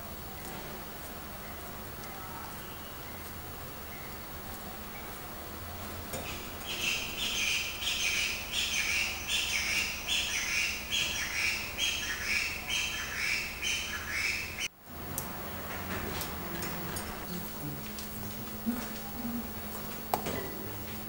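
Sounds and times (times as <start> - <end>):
bird calling loudly: 6.2 - 14.7.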